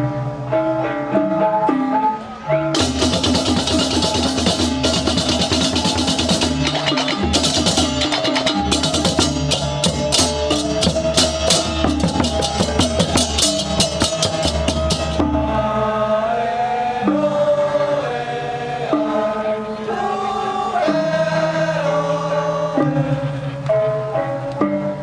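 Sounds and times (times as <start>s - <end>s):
fast dense percussion: 2.8s - 15.5s.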